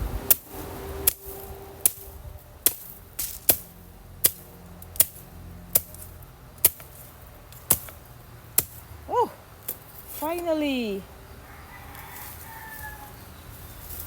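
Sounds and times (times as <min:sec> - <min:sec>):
machete chopping wood: 0:02.7 - 0:08.9.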